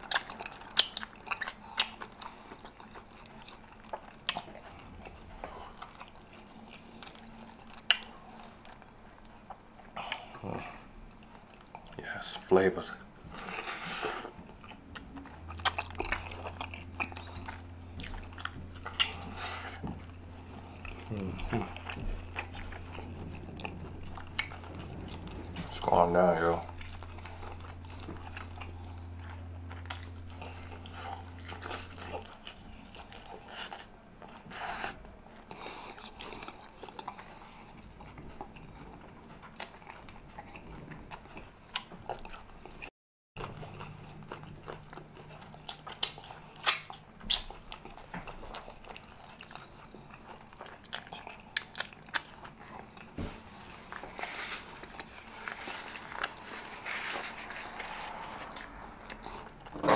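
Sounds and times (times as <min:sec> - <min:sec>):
close chewing and biting: 0:00.0 - 0:59.9
low hum: 0:04.4 - 0:11.2, 0:12.9 - 0:35.4
wet mouth clicks and smacks: 0:46.0 - 0:47.5.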